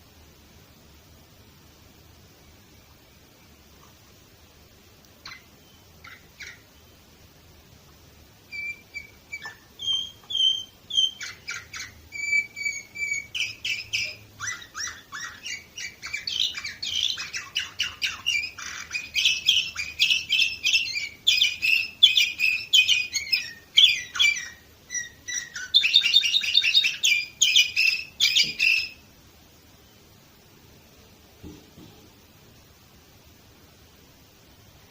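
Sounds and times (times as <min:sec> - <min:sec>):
canary singing trills: 0:05.2 - 0:07.1, 0:08.4 - 0:29.1.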